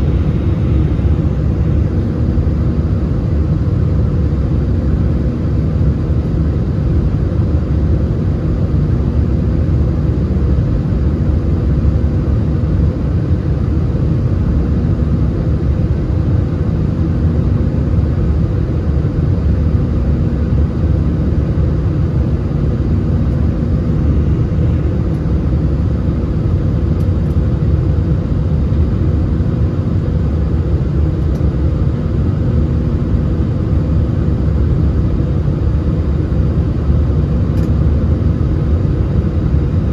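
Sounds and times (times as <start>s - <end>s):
jet engines rumbling: 0.0s - 6.1s, 19.9s - 39.9s
faint hum: 0.0s - 8.4s, 12.7s - 39.9s.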